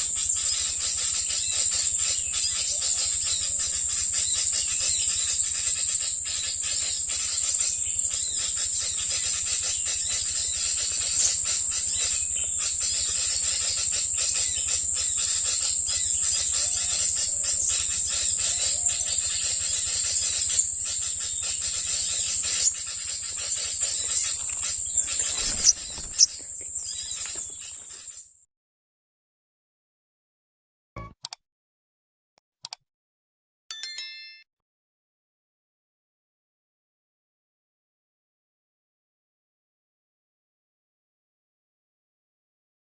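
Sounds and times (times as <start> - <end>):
high-pitched insect drone: 0.0 - 27.6.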